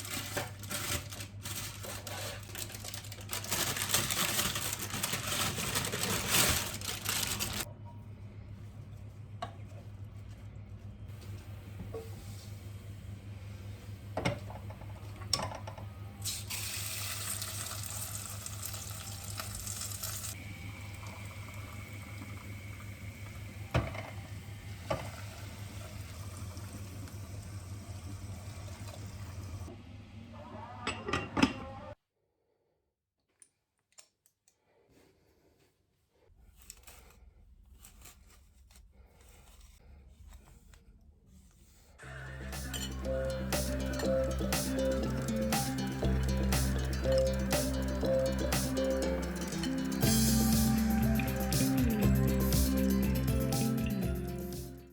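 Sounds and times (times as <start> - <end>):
dishes clinking: 42.6 - 44.9.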